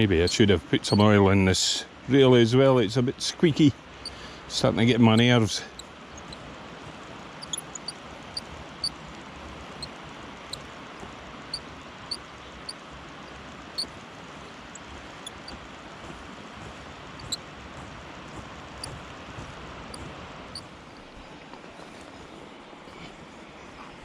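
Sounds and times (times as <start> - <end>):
river water rushing: 0.0 - 23.8
fishing reel squeaking: 0.2 - 1.2, 7.4 - 9.0, 13.7 - 13.9, 14.7 - 15.6, 17.2 - 17.4.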